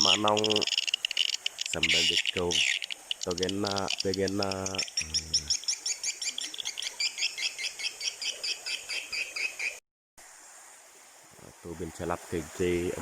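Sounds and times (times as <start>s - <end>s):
swiftlet twittering: 0.0s - 7.7s.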